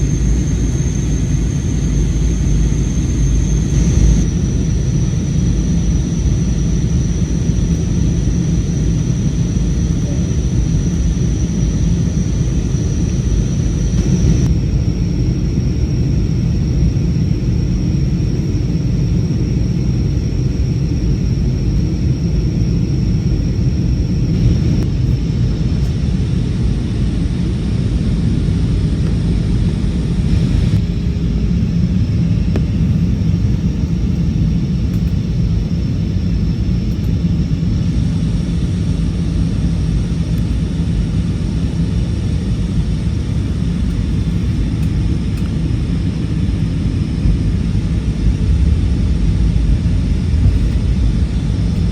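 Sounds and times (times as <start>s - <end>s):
thin high whine: 0.0s - 15.4s, 22.8s - 35.2s
airliner engine rumble: 0.0s - 51.9s.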